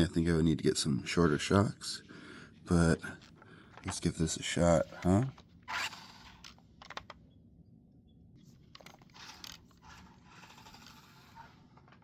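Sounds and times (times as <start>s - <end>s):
toy truck drivetrain whirring: 9.1s - 11.6s.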